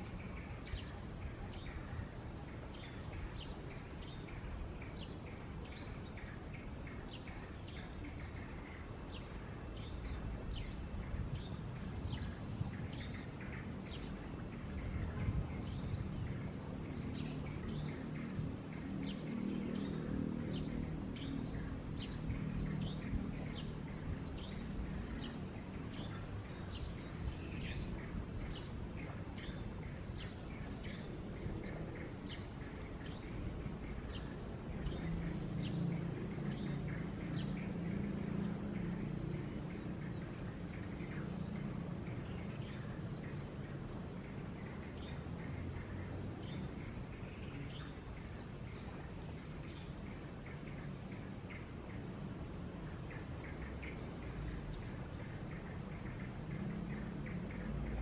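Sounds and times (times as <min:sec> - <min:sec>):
low outdoor rumble: 0:00.0 - 0:58.0
low steady drone: 0:00.0 - 0:58.0
small birds chirping: 0:00.0 - 0:58.0.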